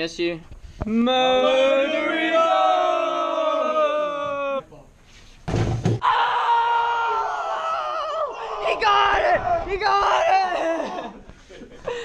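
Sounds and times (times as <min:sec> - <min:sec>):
group of young voices shouting: 0:01.2 - 0:04.6, 0:06.0 - 0:11.1.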